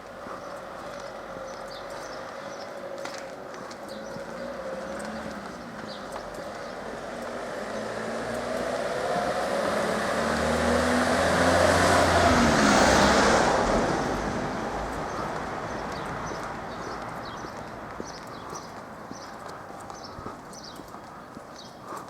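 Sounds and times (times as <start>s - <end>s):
vehicle driving past: 0.5s - 17.9s.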